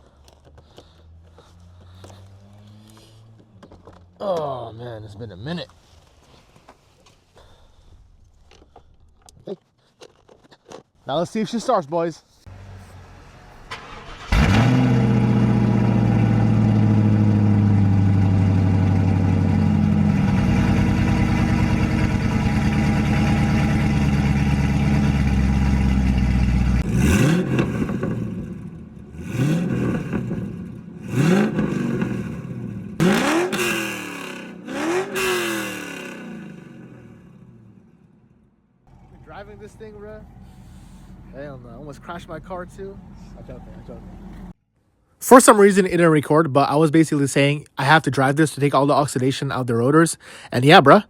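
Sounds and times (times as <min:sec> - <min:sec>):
engine revving: 0:00.9 - 0:04.0, 0:12.5 - 0:38.0
car engine starting: 0:12.4 - 0:37.9, 0:38.9 - 0:44.6
engine fast idle: 0:13.6 - 0:26.8, 0:38.9 - 0:41.4.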